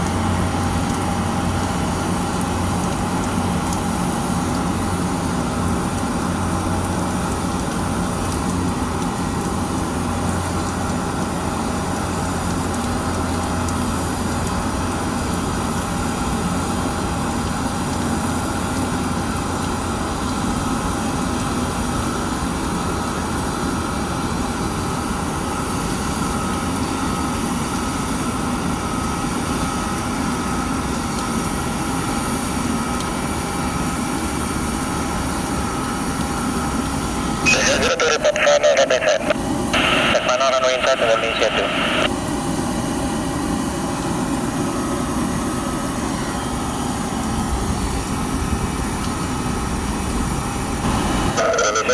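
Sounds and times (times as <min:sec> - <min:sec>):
jet aircraft noise: 0:34.8 - 0:51.9.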